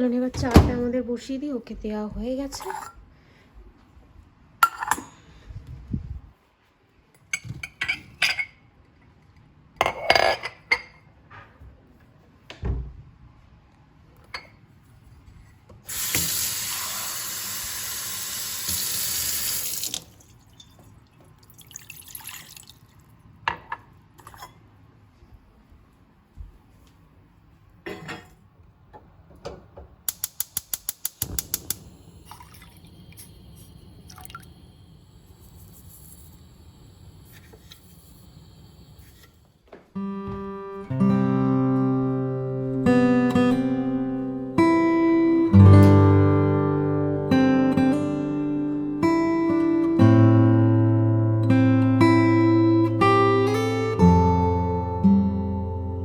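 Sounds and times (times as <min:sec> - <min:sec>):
tap running: 0:15.9 - 0:16.6.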